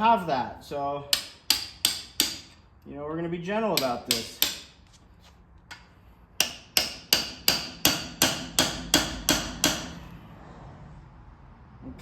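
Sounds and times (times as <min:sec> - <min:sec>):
hammer strikes on metal: 0:01.1 - 0:02.6, 0:03.7 - 0:04.8, 0:06.4 - 0:10.1.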